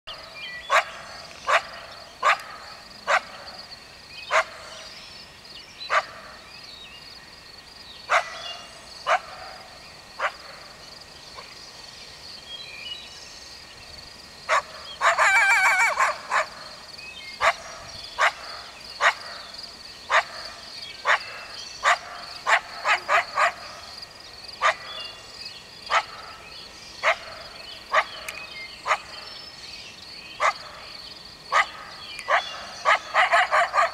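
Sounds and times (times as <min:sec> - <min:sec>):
coyote barking: 0:00.6 - 0:03.5, 0:04.3 - 0:04.8, 0:05.9 - 0:06.4, 0:08.1 - 0:10.6, 0:14.5 - 0:16.8, 0:17.4 - 0:19.5, 0:20.1 - 0:23.9, 0:24.6 - 0:25.0, 0:25.9 - 0:26.4, 0:27.0 - 0:29.2, 0:30.4 - 0:30.9, 0:31.5 - 0:33.9
coyote howling yip: 0:00.7 - 0:03.4, 0:14.5 - 0:16.6, 0:17.4 - 0:19.4, 0:20.1 - 0:20.4, 0:21.0 - 0:23.8, 0:24.6 - 0:24.9, 0:30.4 - 0:30.6, 0:31.5 - 0:33.9.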